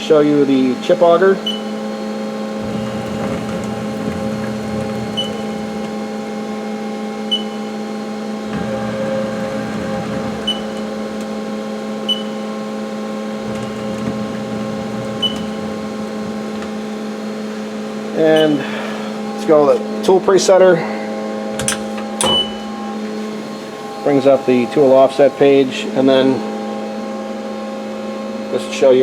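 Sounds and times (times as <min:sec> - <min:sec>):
machine motor hum: 0:02.4 - 0:06.8, 0:08.1 - 0:18.2, 0:22.7 - 0:26.4.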